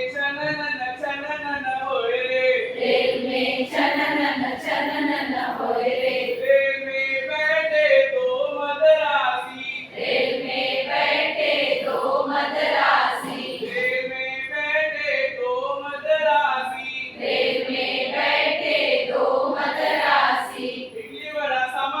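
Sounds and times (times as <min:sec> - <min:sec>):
group of voices singing: 0:02.7 - 0:06.5, 0:09.9 - 0:13.9, 0:17.2 - 0:21.0.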